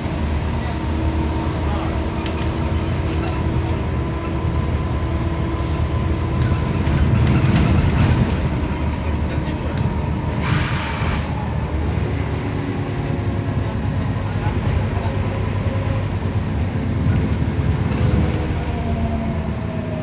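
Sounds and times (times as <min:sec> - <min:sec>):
bus engine droning: 0:00.0 - 0:20.0
short hiss: 0:10.4 - 0:11.4.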